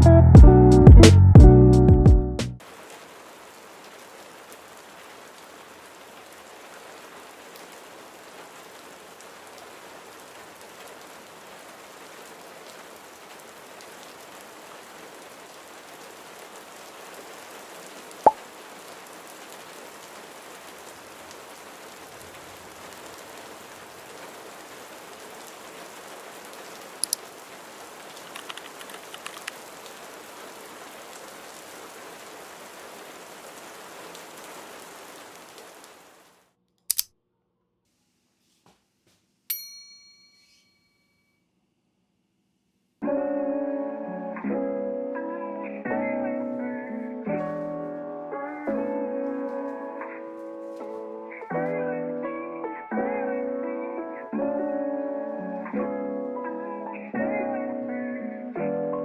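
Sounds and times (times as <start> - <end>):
steady rain: 2.6 - 37.0, 43.0 - 59.0
quick ticks: 28.1 - 29.6
sharp click: 36.8 - 37.1.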